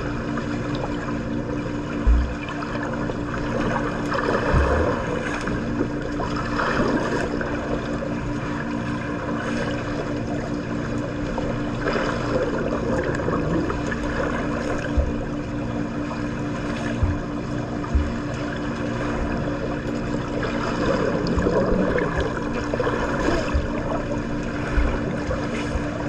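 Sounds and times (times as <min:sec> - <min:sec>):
steady low hum: 0:00.0 - 0:26.0
water splashing in a pool: 0:00.0 - 0:26.0
dull low bump: 0:02.0 - 0:02.5, 0:04.4 - 0:05.1, 0:14.7 - 0:15.5, 0:16.8 - 0:19.9, 0:23.3 - 0:26.0.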